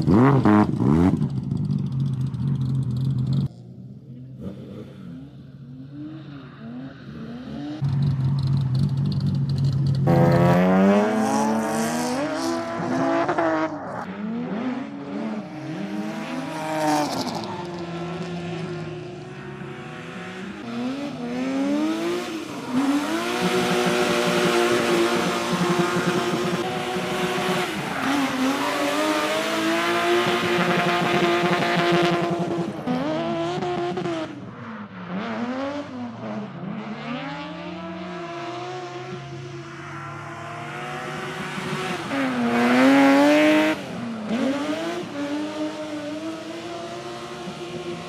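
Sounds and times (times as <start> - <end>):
car engine revving: 4.3 - 34.4, 40.0 - 48.0.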